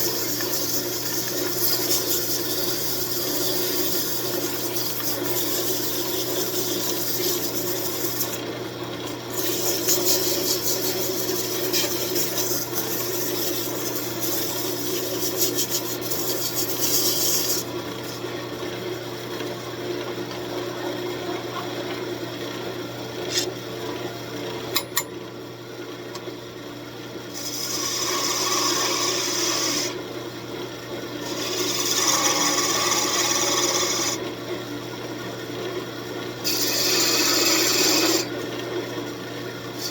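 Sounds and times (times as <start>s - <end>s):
tool scraping wood: 0.0s - 8.4s, 9.3s - 18.2s, 23.3s - 23.5s, 27.4s - 30.0s, 31.2s - 34.2s, 36.5s - 38.3s
wood lathe humming: 0.0s - 18.6s, 27.3s - 30.1s, 31.2s - 34.4s, 36.4s - 38.4s.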